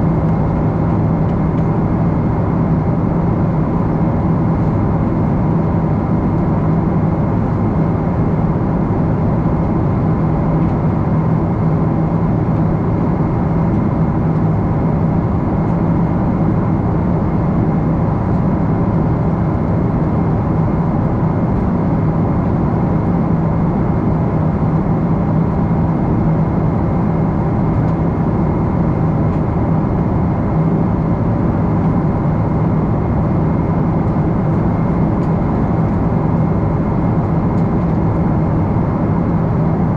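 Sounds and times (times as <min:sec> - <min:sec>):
jet cabin engine drone: 0:00.0 - 0:39.9.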